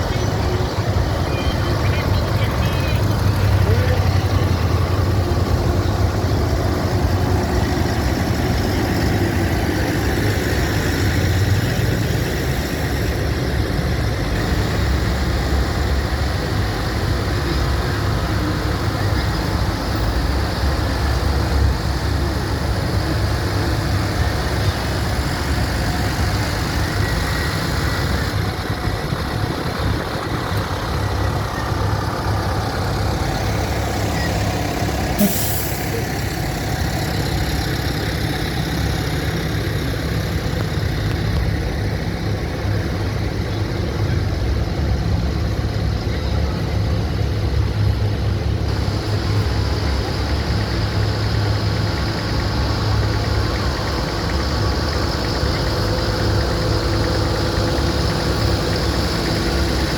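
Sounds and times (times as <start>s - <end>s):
tractor engines rumbling: 0.0s - 59.9s
short hiss: 35.2s - 35.9s.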